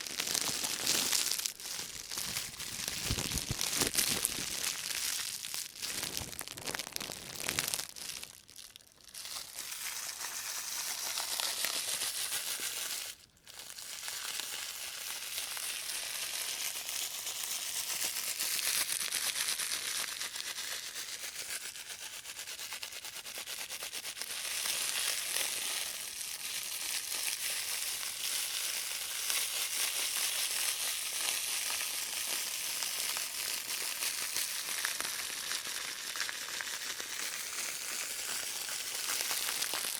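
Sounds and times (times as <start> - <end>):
plastic bag crinkling: 0.0 - 21.1, 24.3 - 39.9.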